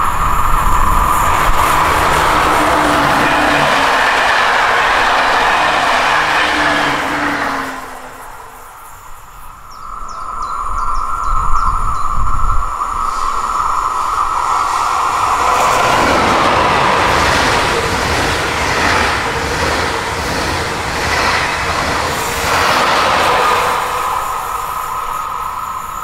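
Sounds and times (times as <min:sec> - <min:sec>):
train wheels clattering: 0:00.0 - 0:08.4, 0:13.8 - 0:26.0
steady high tone: 0:00.0 - 0:09.2
train rushing past: 0:00.0 - 0:11.4, 0:12.0 - 0:26.0.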